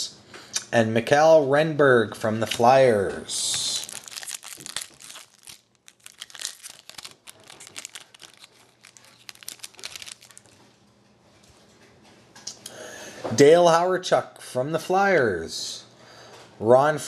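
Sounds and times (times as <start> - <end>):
card pack wrapper crinkling: 3.5 - 10.6.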